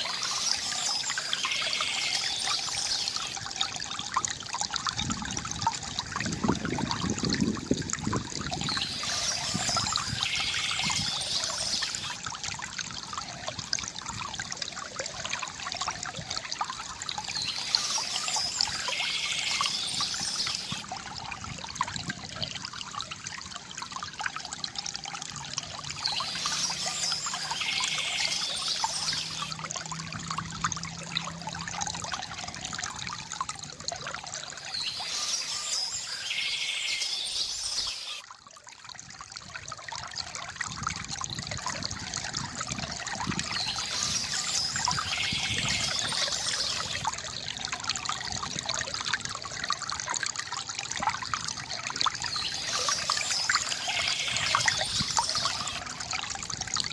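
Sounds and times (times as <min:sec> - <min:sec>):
water trickling from fountain: 0:00.0 - 0:56.9
bird chirping: 0:34.7 - 0:38.2.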